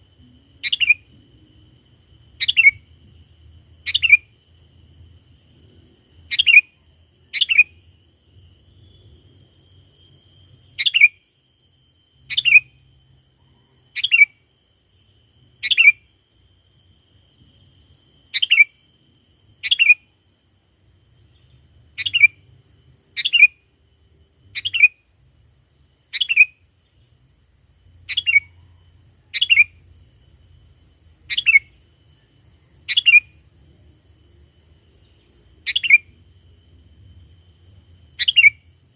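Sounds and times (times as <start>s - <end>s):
bird calling downward notes: 35.1s - 36.2s, 38.2s - 38.6s.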